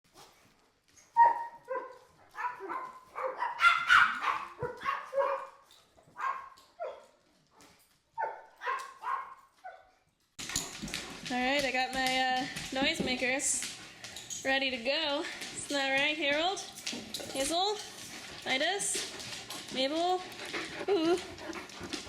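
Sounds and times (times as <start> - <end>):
dog barking and yipping: 1.1 - 10.8.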